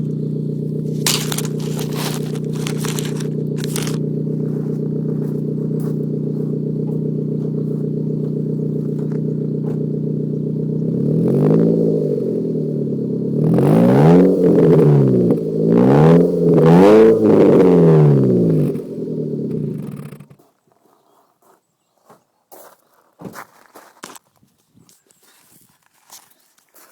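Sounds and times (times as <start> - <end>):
car engine idling and revving: 0.0 - 20.4.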